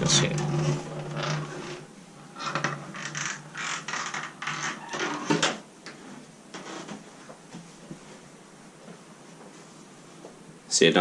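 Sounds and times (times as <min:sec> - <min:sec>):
scuffing and rustling: 0:06.9 - 0:10.4.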